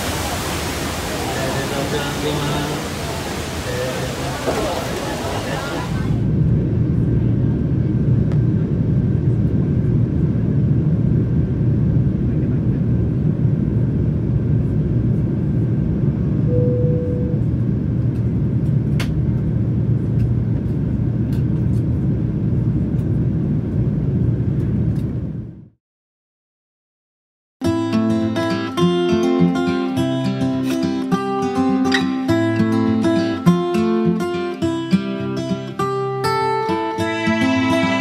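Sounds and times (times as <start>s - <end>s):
airplane cabin engine rumble: 0.0s - 25.7s
short steady tone: 16.4s - 17.5s, 37.0s - 38.0s.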